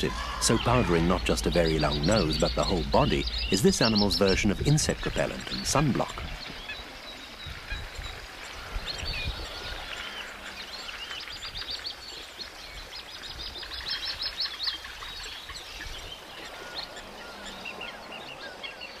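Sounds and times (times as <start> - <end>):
low outdoor rumble: 0.0 - 6.4
wild birds chirping: 0.0 - 19.0.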